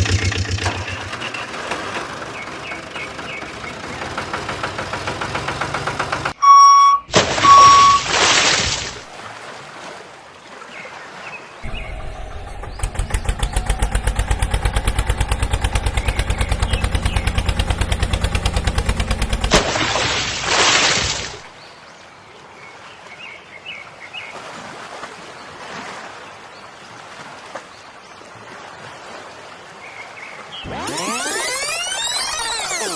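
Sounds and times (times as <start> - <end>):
engine-like chugging: 0.0 - 6.4, 11.6 - 19.6.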